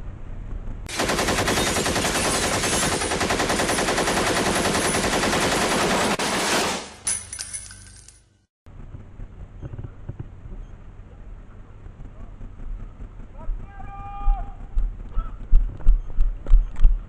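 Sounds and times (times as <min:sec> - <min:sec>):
automatic gunfire burst: 0:00.9 - 0:07.0.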